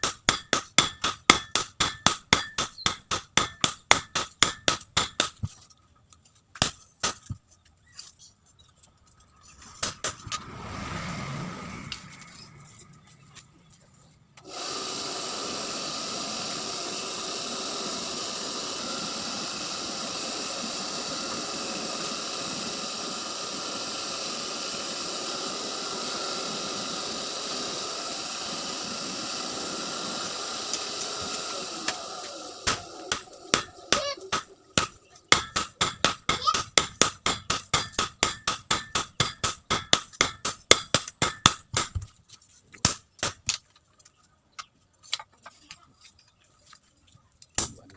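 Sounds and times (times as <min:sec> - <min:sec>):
hammer blows on anvil: 0:00.0 - 0:05.5, 0:32.7 - 0:42.1
steady machine noise: 0:00.0 - 0:05.5, 0:14.4 - 0:42.0.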